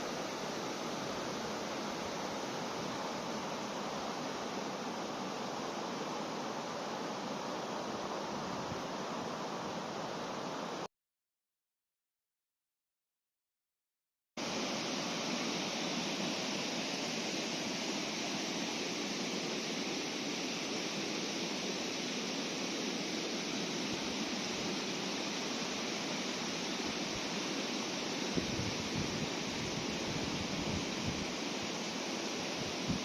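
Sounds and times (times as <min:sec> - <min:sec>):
river water rushing: 0:00.0 - 0:10.8
wind rumble on microphone: 0:28.3 - 0:31.3, 0:32.6 - 0:33.0.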